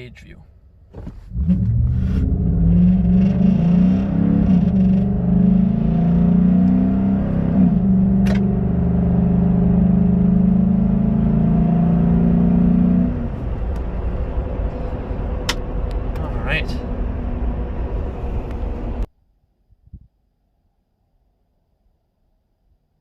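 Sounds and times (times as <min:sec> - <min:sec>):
engine revving at full throttle: 0:01.3 - 0:13.3.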